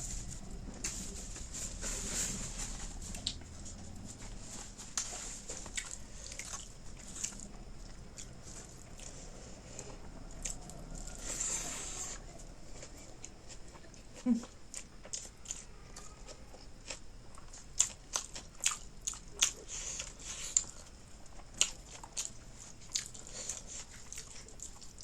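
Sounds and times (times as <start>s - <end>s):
close chewing and biting: 0.0s - 25.0s.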